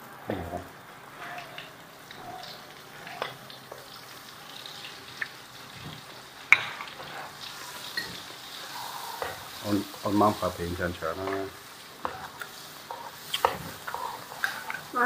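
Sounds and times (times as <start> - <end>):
butter sizzling in wok: 0.0 - 15.0
metal spatula stirring: 5.6 - 14.9.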